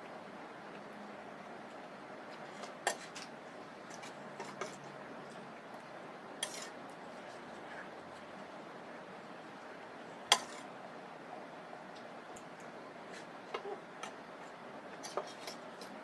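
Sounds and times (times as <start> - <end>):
utensils clinking against a dish: 15.0 - 16.0.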